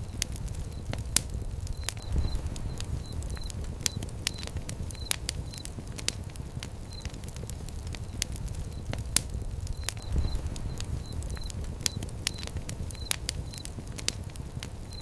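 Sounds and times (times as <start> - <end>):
flames rumbling: 0.0 - 15.0
wood fire crackling: 0.0 - 15.0.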